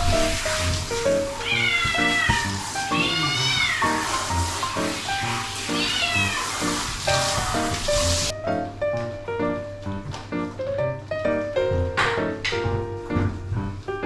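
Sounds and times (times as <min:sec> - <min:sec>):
cat meowing: 0:01.2 - 0:04.2, 0:05.5 - 0:06.8.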